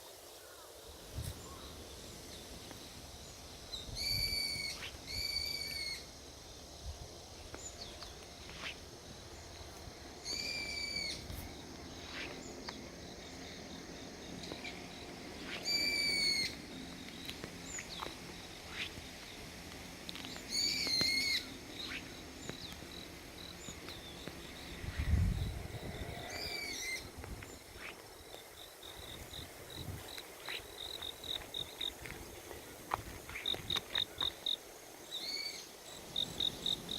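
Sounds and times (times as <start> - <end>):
animal long high whistled call: 4.0 - 6.1, 15.6 - 16.6, 26.0 - 27.1.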